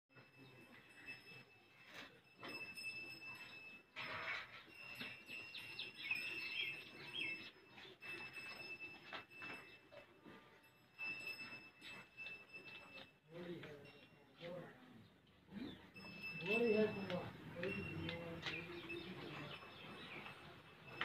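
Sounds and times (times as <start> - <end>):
small birds chirping: 4.8 - 8.4, 14.9 - 21.0.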